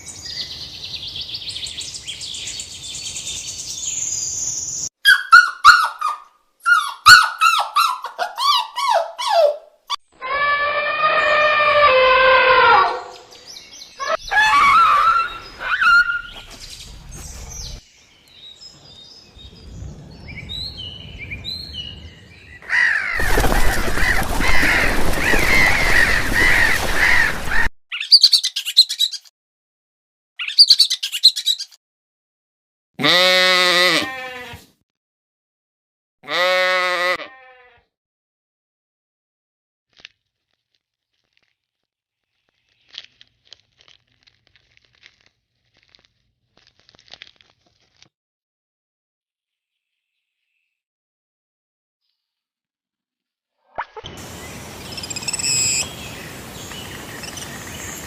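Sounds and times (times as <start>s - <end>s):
bird chirps and calls: 27.9s - 29.3s, 30.4s - 31.8s, 54.0s - 58.0s.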